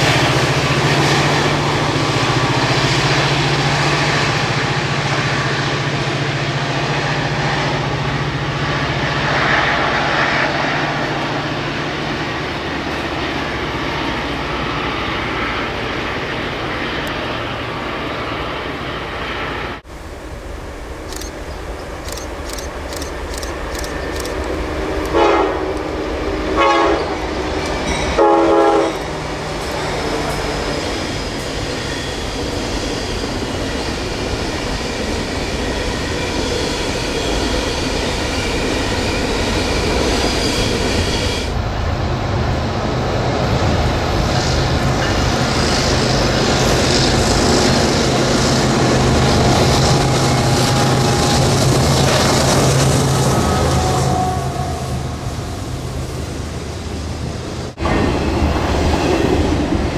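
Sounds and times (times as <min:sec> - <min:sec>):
train rumble and wheel clatter: 0:00.0 - 0:59.9
locomotive horn blasts: 0:25.1 - 0:27.5, 0:28.1 - 0:29.1, 0:53.3 - 0:55.2.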